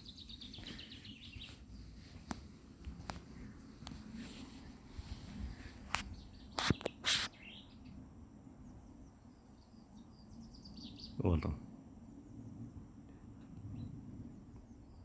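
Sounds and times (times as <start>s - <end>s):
small birds chirping: 0.0s - 15.0s
short high bird calls: 6.1s - 7.8s.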